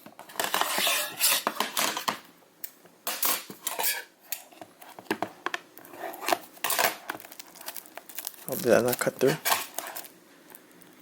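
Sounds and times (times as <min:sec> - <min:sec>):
blade scraping cardboard box: 0:00.4 - 0:01.6.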